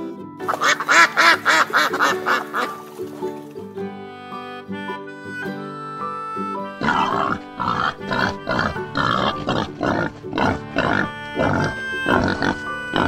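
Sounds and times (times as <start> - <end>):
light background music: 0.0 - 13.0
boar grunting: 6.7 - 13.0.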